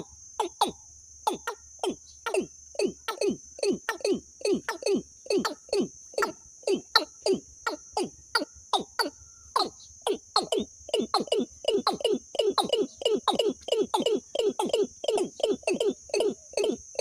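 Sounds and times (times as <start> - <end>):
bird lure call: 0.0 - 17.0.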